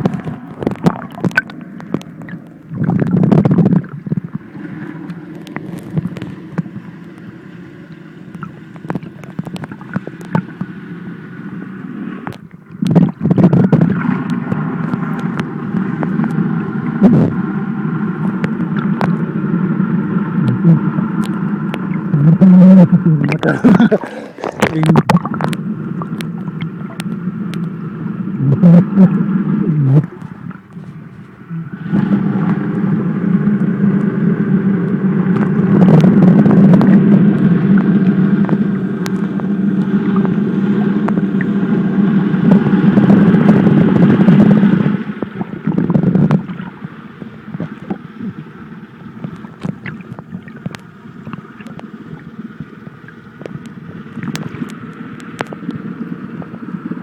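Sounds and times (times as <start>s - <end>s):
muffled boat engine drone: 0.0s - 57.0s.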